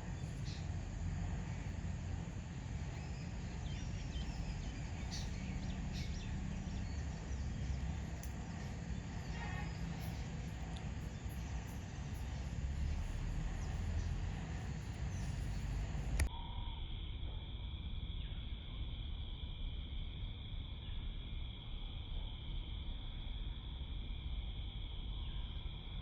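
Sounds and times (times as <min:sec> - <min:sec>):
faint high chirping: 0:00.0 - 0:16.3
low wind-like rumble: 0:00.0 - 0:16.8
click: 0:15.5 - 0:16.3.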